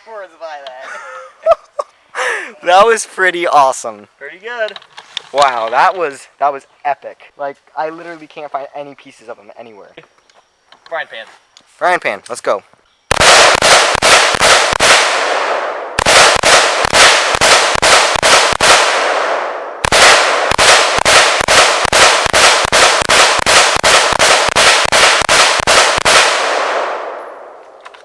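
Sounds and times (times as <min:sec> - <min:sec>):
semi-automatic rifle fire: 0:13.1 - 0:27.8.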